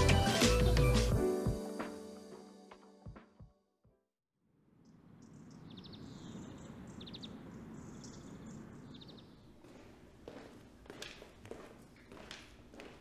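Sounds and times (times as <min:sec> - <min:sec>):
small birds chirping: 0:04.8 - 0:09.9.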